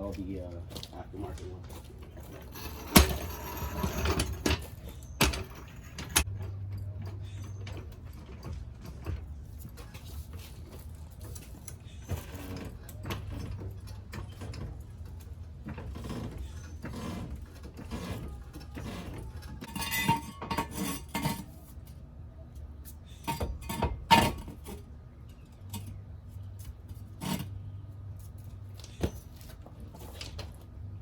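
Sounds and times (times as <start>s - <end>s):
floor jack ratcheting and rattling: 2.2s - 9.0s.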